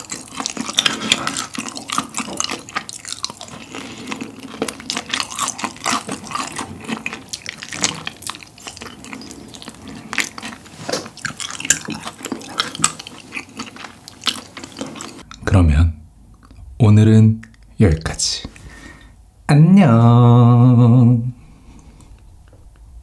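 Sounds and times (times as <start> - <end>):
wet chewing and mouth smacks: 0.0 - 15.4.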